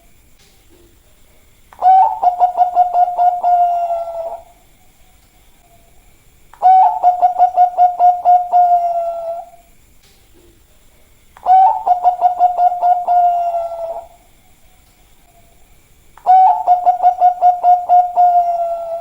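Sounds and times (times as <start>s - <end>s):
dove cooing: 1.8s - 4.6s, 6.6s - 9.6s, 11.4s - 14.3s, 16.2s - 19.0s.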